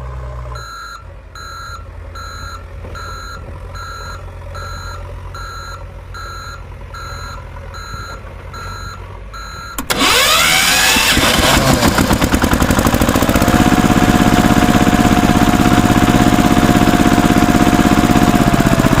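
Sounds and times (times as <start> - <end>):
electronic reversing beeps: 0.6 - 10.2
engine revving: 9.7 - 19.0.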